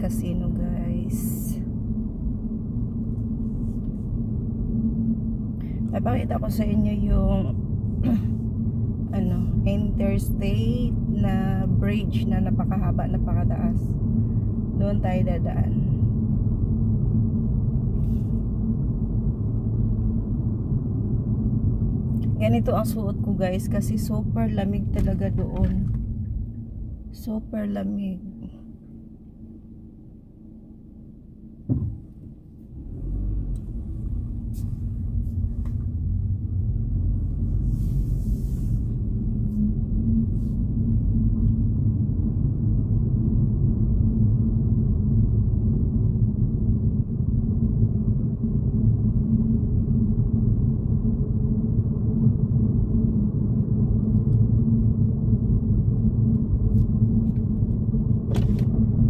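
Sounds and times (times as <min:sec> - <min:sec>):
thump: 0:31.6 - 0:32.2.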